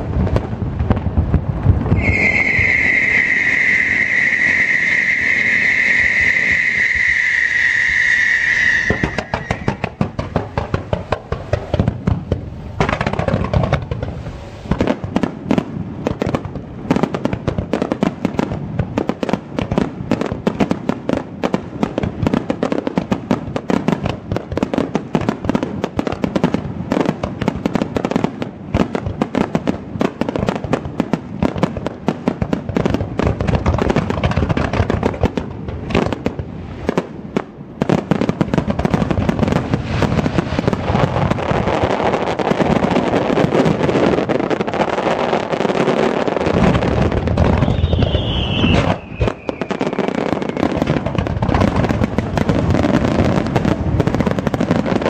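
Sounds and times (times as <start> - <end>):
fireworks booming and crackling: 0.0 - 55.0.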